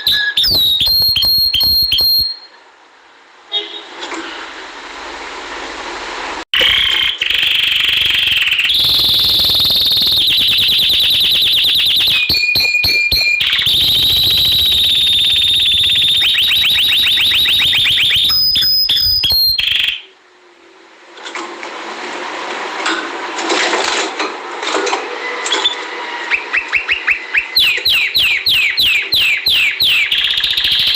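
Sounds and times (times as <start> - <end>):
canary singing trills: 0.0 - 2.6, 6.6 - 20.1, 26.3 - 30.9.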